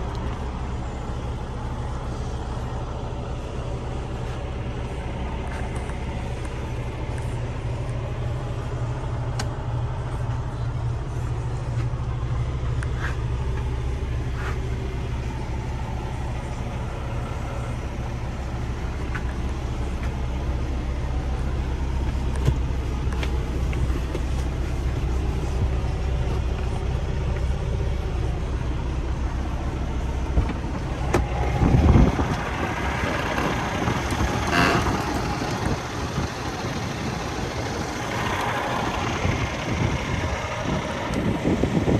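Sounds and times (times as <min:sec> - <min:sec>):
diesel engine idling: 0:00.0 - 0:41.9
engine knocks: 0:04.2 - 0:41.9
short engine burst: 0:30.2 - 0:41.9.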